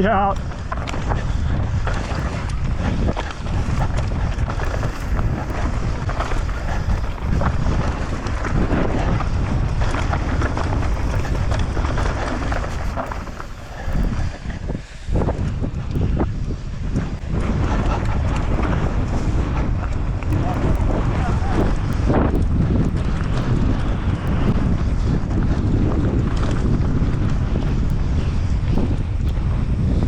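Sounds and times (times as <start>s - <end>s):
wind buffeting microphone: 0.0s - 30.0s
bike rattling and knocking: 0.1s - 14.3s.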